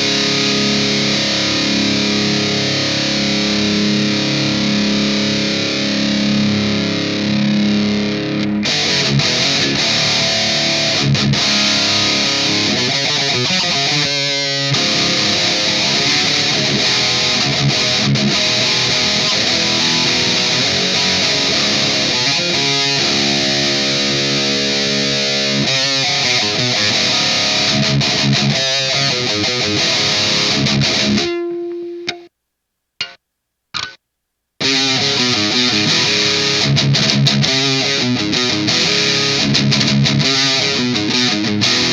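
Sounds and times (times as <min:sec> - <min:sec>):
distorted electric guitar riffing: 0:00.0 - 0:32.3, 0:34.6 - 0:41.9.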